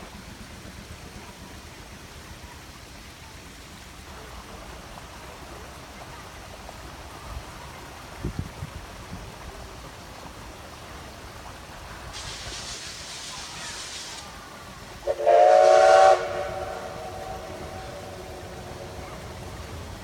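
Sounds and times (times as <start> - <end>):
steam hissing: 11.7 - 20.0
steam whistle blast: 15.0 - 19.0.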